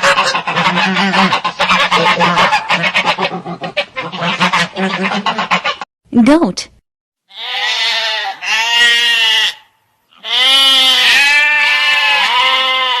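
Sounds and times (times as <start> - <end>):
goat bleating: 0.2 - 3.2, 7.3 - 13.0.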